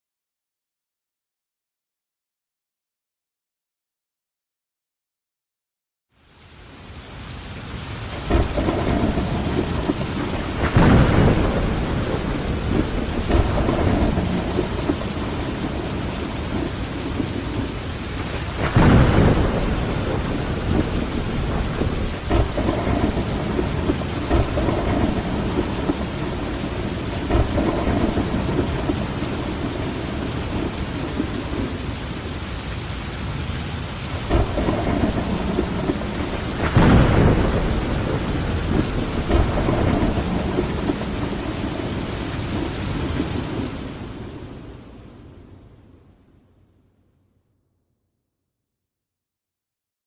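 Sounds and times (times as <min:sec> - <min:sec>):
rain against a window: 0:06.1 - 0:46.1
thunderclap: 0:08.1 - 0:32.5, 0:33.4 - 0:44.8
rolling thunder: 0:08.1 - 0:45.5.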